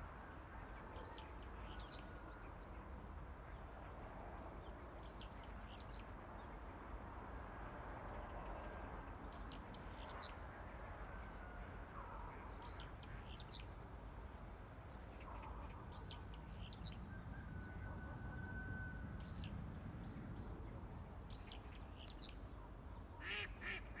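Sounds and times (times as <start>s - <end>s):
faint low outdoor rumble: 0.0s - 24.0s.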